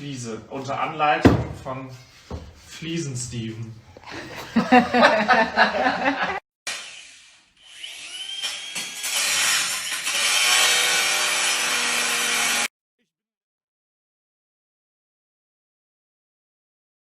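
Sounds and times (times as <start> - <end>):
tile saw grinding tile: 6.7 - 12.7.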